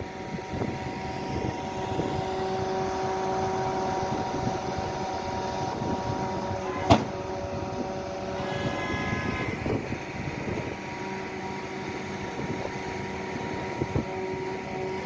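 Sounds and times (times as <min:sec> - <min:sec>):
engine hum with whine: 0:00.0 - 0:15.0
sharp knock: 0:06.9 - 0:07.2.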